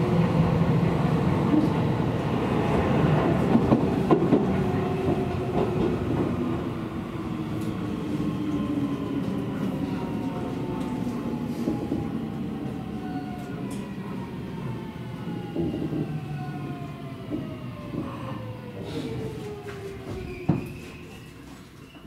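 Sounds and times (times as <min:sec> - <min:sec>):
electric train running on track: 0:00.0 - 0:19.9.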